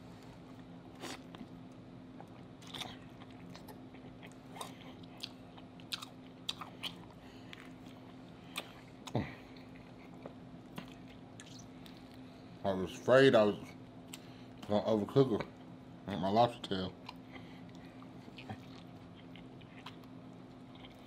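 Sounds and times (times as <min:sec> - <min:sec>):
person chewing with mouth clicks: 0:02.2 - 0:12.2, 0:17.0 - 0:21.0.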